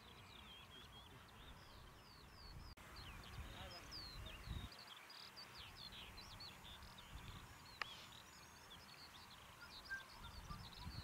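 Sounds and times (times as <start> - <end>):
birds chirping and twittering: 0.0 - 11.0.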